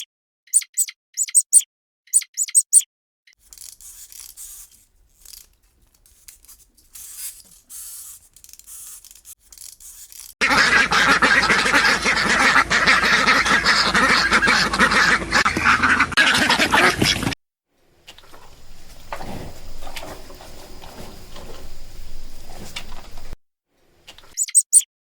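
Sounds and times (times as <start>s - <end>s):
flock of ducks quacking: 10.4s - 17.4s.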